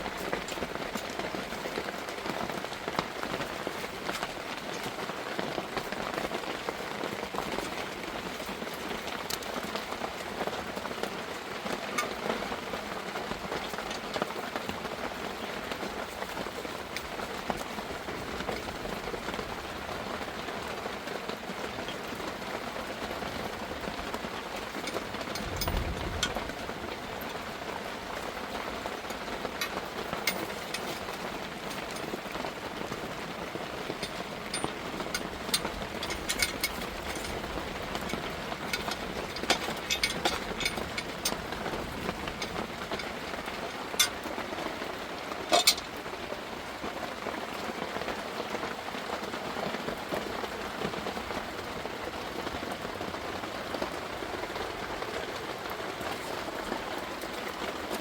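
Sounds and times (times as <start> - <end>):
rain drop ticks: 0.0 - 46.9
heavy rain: 0.0 - 58.0
low rumble: 25.3 - 27.3.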